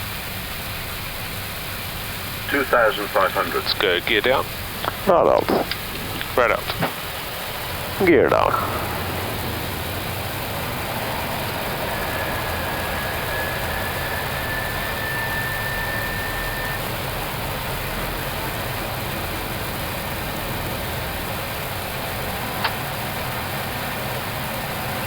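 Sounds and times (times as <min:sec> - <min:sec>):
aircraft engine hum: 0:00.0 - 0:25.0
airflow rush: 0:02.1 - 0:17.2
faint thin tone: 0:02.5 - 0:04.5, 0:09.8 - 0:16.9.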